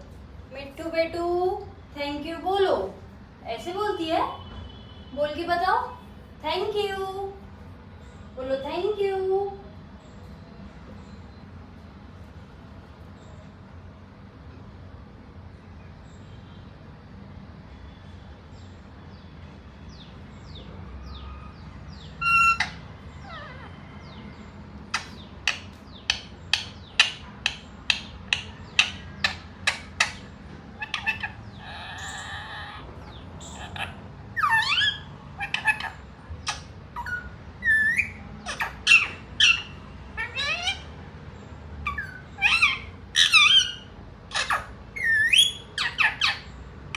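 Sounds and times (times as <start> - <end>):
parrot calling: 21.2 - 41.0, 41.8 - 46.9
parrot squawk: 22.2 - 24.2, 24.9 - 41.0, 41.8 - 46.6.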